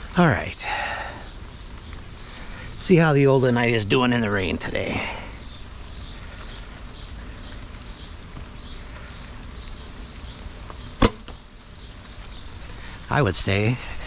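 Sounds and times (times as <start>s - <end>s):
bow string snap: 11.0s - 11.4s.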